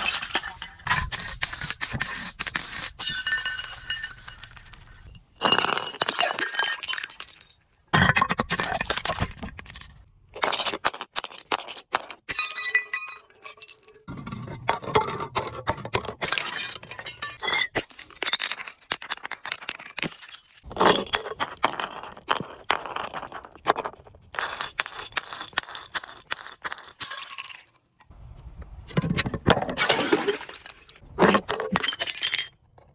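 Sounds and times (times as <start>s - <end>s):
glass shards clinking: 0.0s - 7.6s
glass bottles breaking: 0.0s - 10.0s, 12.3s - 14.4s, 16.2s - 21.8s, 26.7s - 27.7s, 29.6s - 32.7s.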